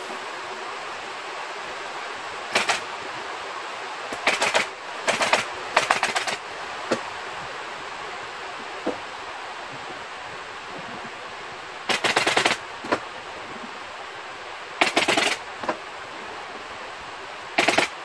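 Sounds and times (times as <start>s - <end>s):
steady hiss: 0.0s - 18.0s
staple gun firing: 17.6s - 17.9s.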